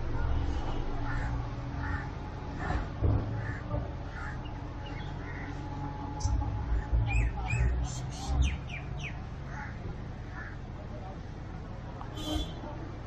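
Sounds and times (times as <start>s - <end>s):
outdoor background noise: 0.0s - 13.0s
birds chirping: 6.2s - 9.7s.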